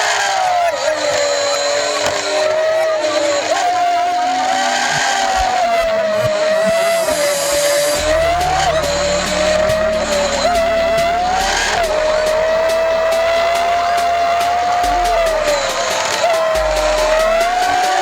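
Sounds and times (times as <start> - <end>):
motorbike engine whine: 0.0 - 18.0
low rumble: 7.8 - 15.9.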